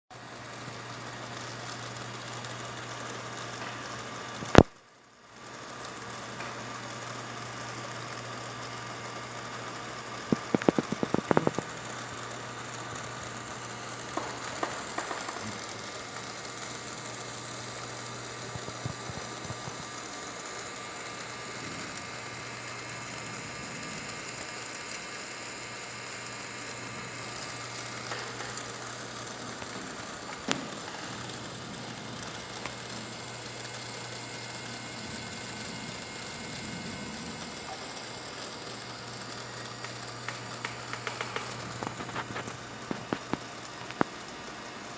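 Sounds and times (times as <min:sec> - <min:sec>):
small electric motor humming: 0:00.2 - 0:44.9
clicking and rattling: 0:14.0 - 0:16.8, 0:39.2 - 0:44.1.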